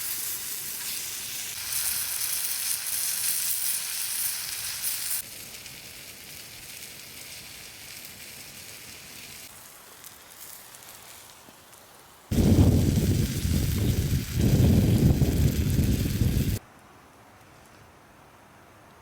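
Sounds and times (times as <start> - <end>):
food frying and sizzling: 0.0 - 16.6.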